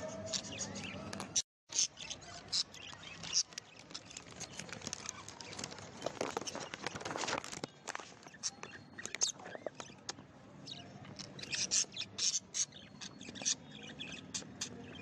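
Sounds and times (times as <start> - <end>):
small clicks and scratches: 2.8 - 10.2
budgerigars chirping: 11.2 - 15.0.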